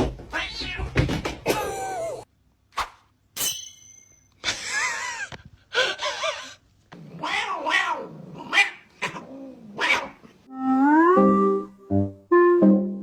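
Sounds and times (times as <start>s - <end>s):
cat meowing: 7.0s - 9.2s.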